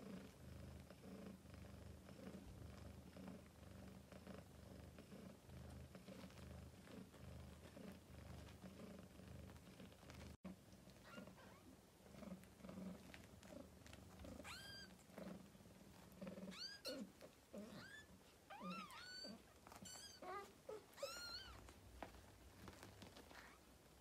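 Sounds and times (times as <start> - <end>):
soft purr: 0.0 - 24.0.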